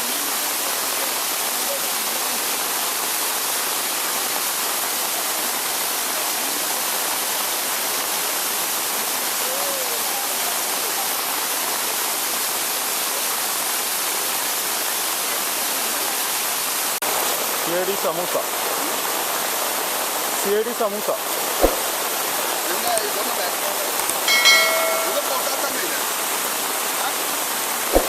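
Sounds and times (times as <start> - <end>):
waterfall rushing: 14.0 - 28.0.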